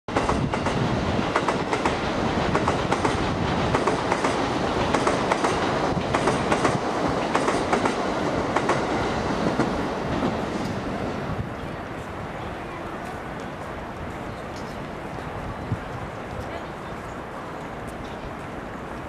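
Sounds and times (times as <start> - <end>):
wheels clacking over rail joints: 0.1 - 11.7
electric train rumbling past: 0.1 - 16.2.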